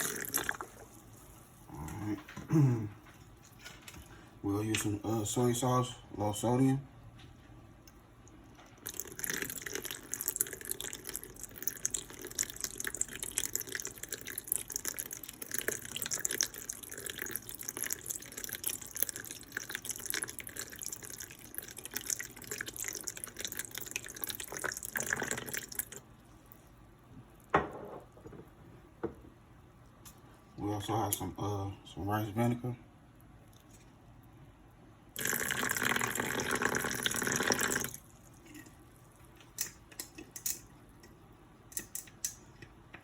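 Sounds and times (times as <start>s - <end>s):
liquid pouring from a bottle: 8.8s - 26.0s, 35.2s - 38.5s.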